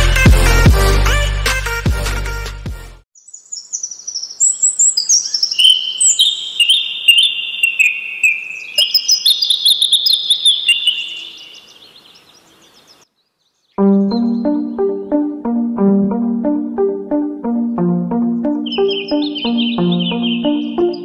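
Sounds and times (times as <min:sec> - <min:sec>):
songbirds singing: 0:03.1 - 0:15.3, 0:18.1 - 0:21.0.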